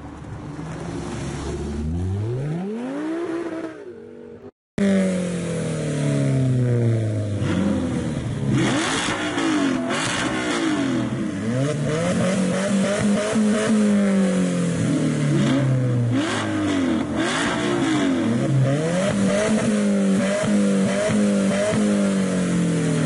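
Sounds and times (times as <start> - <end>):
louder engine blipped: 1.6 - 23.0
sports car engine revving: 4.8 - 23.0.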